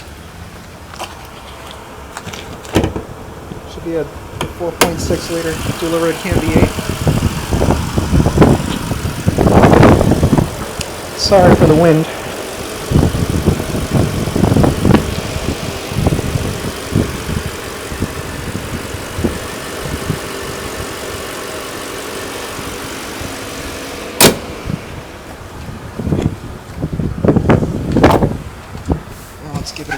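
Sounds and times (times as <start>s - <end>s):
car engine idling: 0.0s - 29.9s
wind gusting on microphone: 5.0s - 21.0s, 24.4s - 29.9s
sharp thump: 24.2s - 24.6s.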